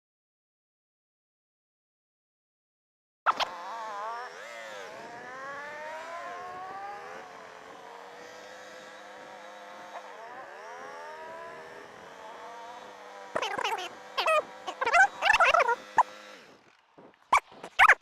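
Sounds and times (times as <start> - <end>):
motorcycle engine revving: 3.3 - 18.0
dog yelping and whining: 13.4 - 15.8, 17.3 - 18.0.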